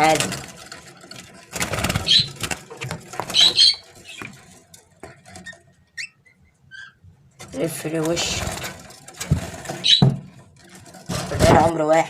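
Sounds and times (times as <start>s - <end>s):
rustling and wing flutter: 0.0s - 6.1s, 7.3s - 12.0s
bird squeaking: 1.9s - 2.5s, 3.2s - 4.4s, 5.9s - 7.0s, 9.8s - 10.1s
bird chirps: 2.0s - 2.4s, 3.3s - 4.3s.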